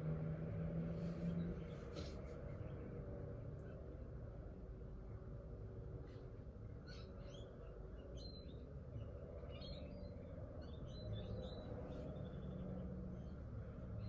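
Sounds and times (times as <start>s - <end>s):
faint birdsong chirps: 0.0s - 14.0s
low background noise: 0.0s - 14.0s.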